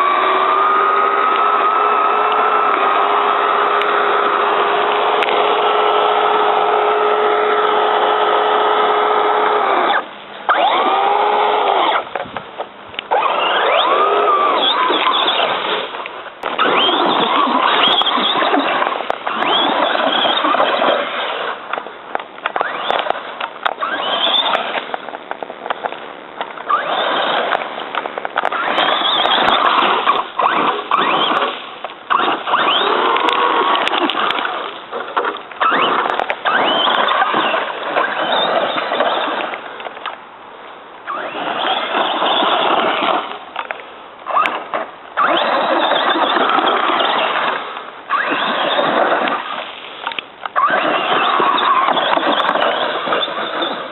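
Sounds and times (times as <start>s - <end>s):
electric motor whine: 0.0s - 12.1s
tyres on dirt: 0.0s - 53.9s.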